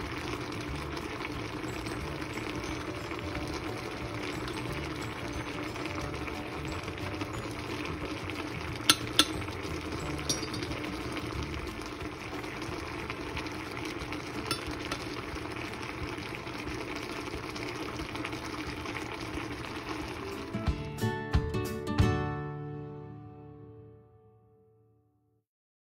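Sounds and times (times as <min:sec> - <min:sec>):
sauce bubbling in pan: 0:00.0 - 0:20.8
metal ladle clinking: 0:02.8 - 0:06.0, 0:08.7 - 0:11.2, 0:14.4 - 0:15.2.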